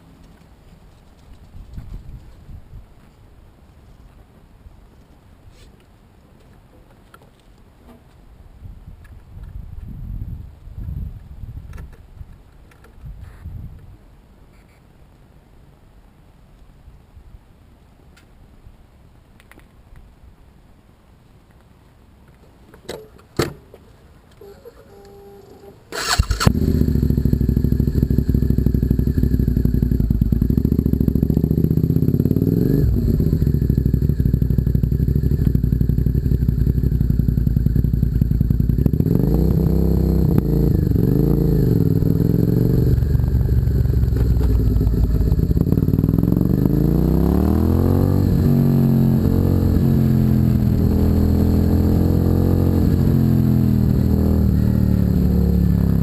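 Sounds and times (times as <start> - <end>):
motorcycle engine idling and revving: 24.4 - 56.0.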